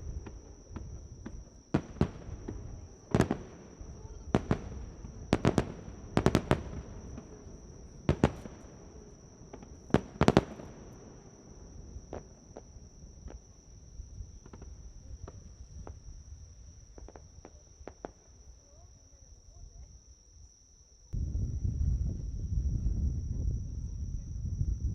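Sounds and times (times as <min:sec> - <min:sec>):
fireworks pops and crackles: 0:00.0 - 0:13.6, 0:14.2 - 0:16.3, 0:16.9 - 0:18.5
fireworks bangs: 0:00.0 - 0:19.0
high-pitched insect trill: 0:00.0 - 0:24.9.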